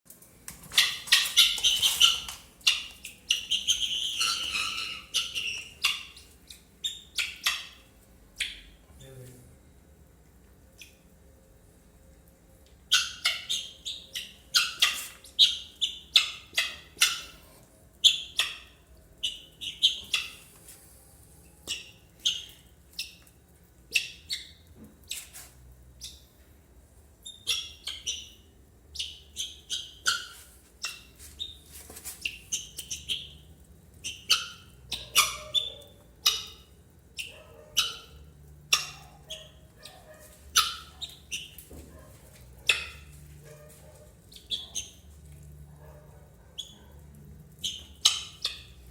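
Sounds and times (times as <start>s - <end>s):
guineafowl calling harshly: 0.8s - 6.2s.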